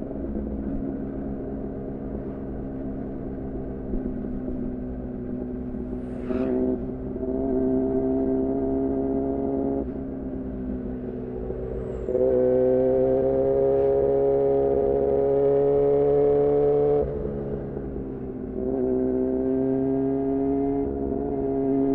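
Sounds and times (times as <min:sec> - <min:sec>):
motorcycle engine revving: 0:05.7 - 0:21.9.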